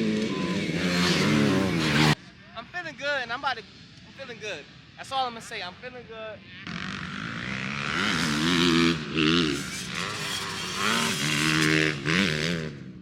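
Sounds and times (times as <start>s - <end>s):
dirt bike engine revving: 0.0s - 2.2s, 6.5s - 13.0s.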